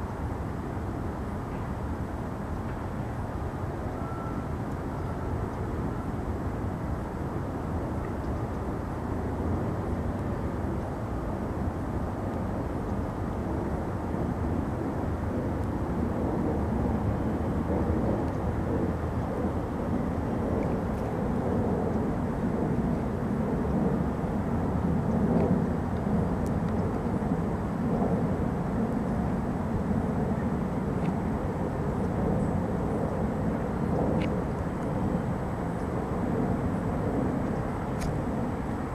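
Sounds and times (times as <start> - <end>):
distant jet engine rumble: 0.0 - 38.9
faint high ticks: 8.0 - 8.7, 37.4 - 38.2.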